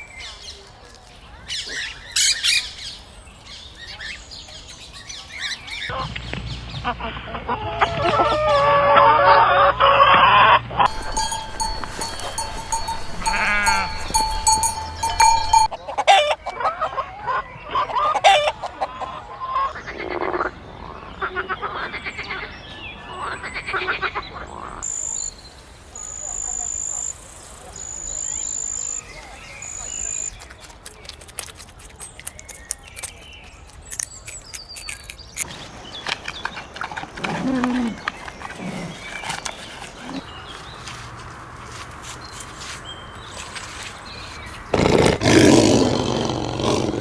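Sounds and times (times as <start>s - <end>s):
farm animals bleating: 10.9s - 16.3s.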